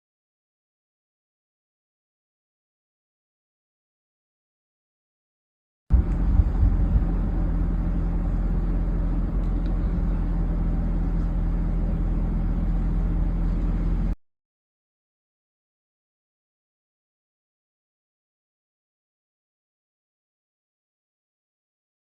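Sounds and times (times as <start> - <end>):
low rumble: 5.9 - 14.2.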